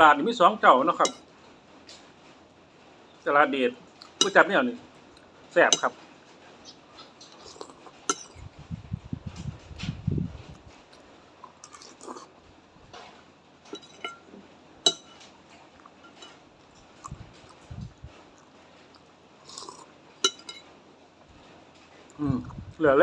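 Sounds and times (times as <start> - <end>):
spoon clinking against bowl: 1.0 - 1.2, 4.1 - 4.5, 5.7 - 6.0, 7.3 - 8.4, 13.7 - 14.3, 14.9 - 15.3, 16.0 - 16.4, 19.5 - 20.7
chewing: 6.9 - 8.4, 10.8 - 13.8, 15.5 - 20.4.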